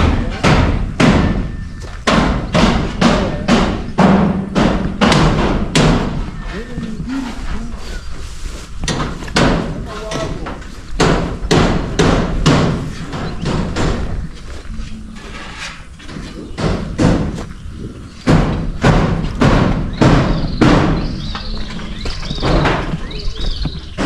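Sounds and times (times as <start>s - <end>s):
hammer knocks on roof: 0.0s - 6.3s, 8.8s - 14.2s, 16.6s - 17.5s, 18.3s - 21.5s.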